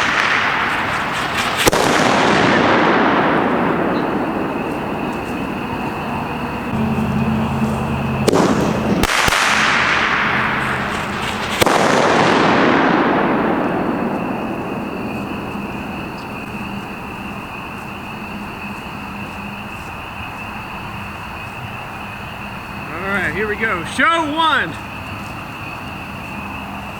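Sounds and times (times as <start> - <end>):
firework mortar launch bang: 0.0 - 16.5
firework shell bursting: 0.0 - 16.5.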